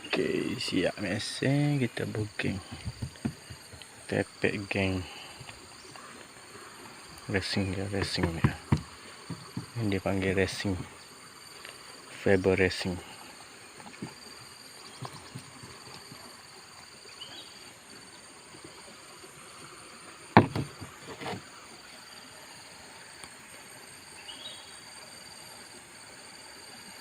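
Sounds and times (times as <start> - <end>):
insect chorus: 0.0 - 27.0
sharp knocks: 8.0 - 9.8, 20.4 - 21.4.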